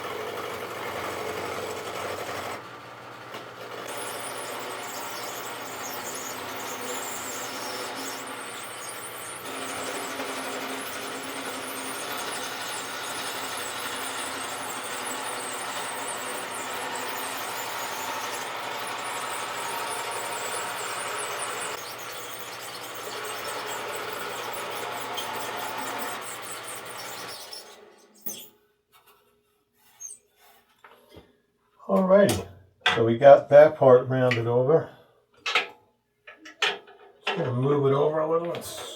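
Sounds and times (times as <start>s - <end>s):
lathe motor hum: 0.0s - 27.9s
tool scraping spinning wood: 0.0s - 31.2s, 36.3s - 38.9s.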